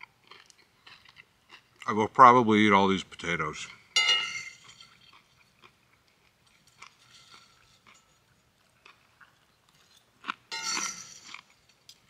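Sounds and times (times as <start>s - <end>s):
person chewing food: 0.0s - 1.9s, 4.6s - 10.5s, 11.3s - 12.0s
fork clinking against skillet: 4.0s - 5.2s, 6.5s - 8.5s, 9.9s - 12.0s.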